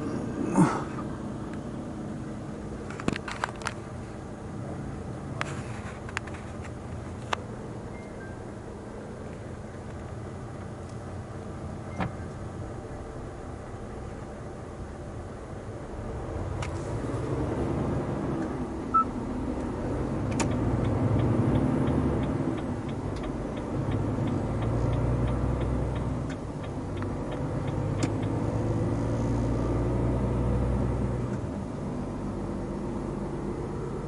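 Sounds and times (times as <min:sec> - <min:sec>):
brief beep: 0:07.9 - 0:08.4, 0:18.9 - 0:19.1
turn signal ticking: 0:18.4 - 0:29.1.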